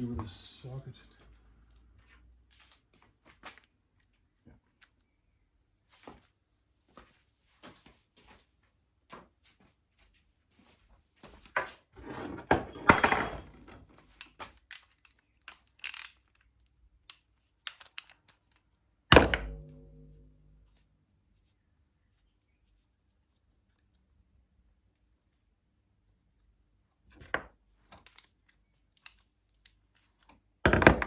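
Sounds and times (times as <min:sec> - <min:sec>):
metal parts scraping clatter: 0:12.0 - 0:14.0
tools clicking and rattling: 0:12.0 - 0:16.5, 0:17.1 - 0:18.5
sharp ringing metal clank: 0:19.3 - 0:20.7.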